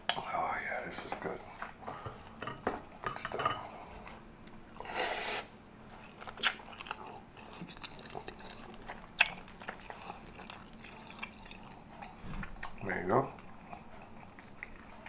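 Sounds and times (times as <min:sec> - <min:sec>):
person chewing wetly: 0:03.7 - 0:04.9, 0:06.0 - 0:15.0.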